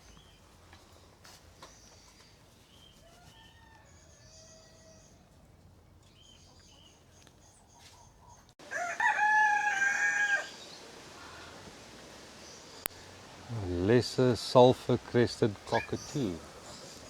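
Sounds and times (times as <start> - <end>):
rooster crowing: 3.0 - 5.2, 8.6 - 11.8.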